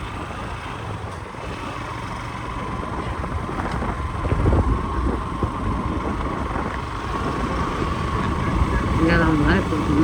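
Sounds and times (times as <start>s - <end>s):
vehicle road and engine rumble: 0.0s - 10.0s
wind on microphone: 2.6s - 10.0s.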